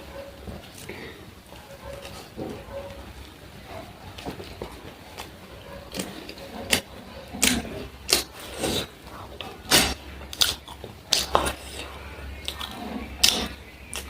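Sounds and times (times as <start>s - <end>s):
chewing with wet mouth clicks: 5.9s - 14.0s.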